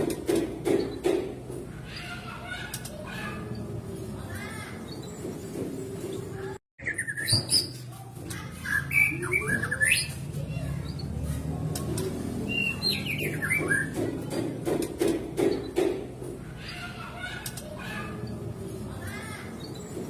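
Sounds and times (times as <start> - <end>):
low background murmur: 0.4 - 20.0
bird singing whistles and chirps: 6.8 - 7.8.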